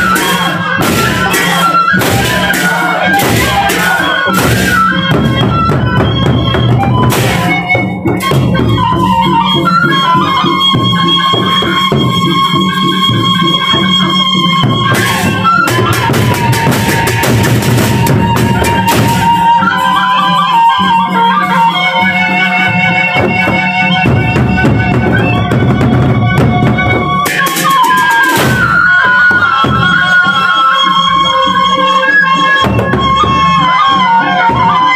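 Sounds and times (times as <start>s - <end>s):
large drums beating: 0.0s - 19.7s, 23.2s - 30.3s, 32.6s - 33.6s.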